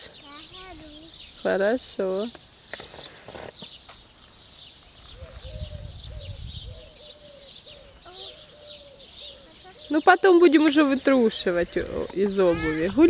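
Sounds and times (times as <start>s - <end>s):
lower bird call: 5.0s - 10.5s.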